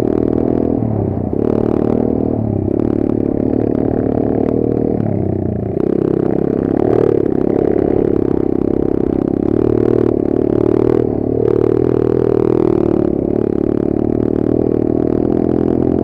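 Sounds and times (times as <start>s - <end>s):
pit bike engine revving: 0.0s - 16.0s.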